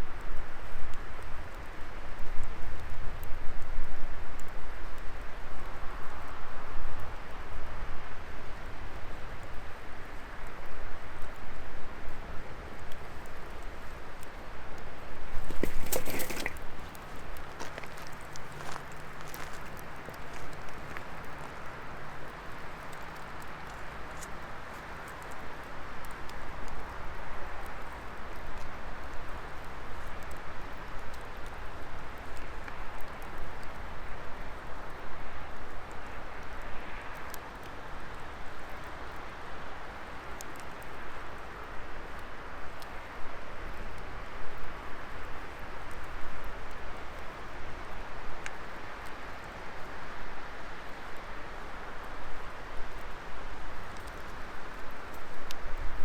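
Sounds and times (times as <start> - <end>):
faint fire crackles: 0.0 - 56.0
fire crackling and popping: 15.3 - 26.4.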